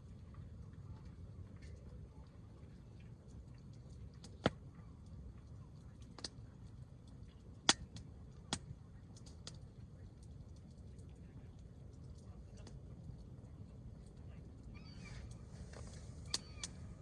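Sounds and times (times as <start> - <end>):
campfire crackling: 0.0 - 17.0
low steady rumble: 0.0 - 17.0
logs popping: 14.0 - 17.0.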